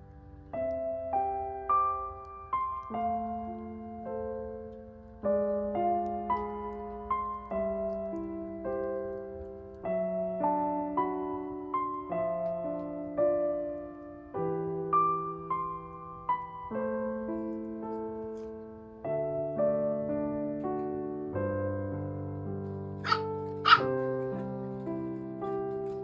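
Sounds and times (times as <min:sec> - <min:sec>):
gentle piano music: 0:00.0 - 0:26.0
small dog yapping: 0:23.0 - 0:24.6.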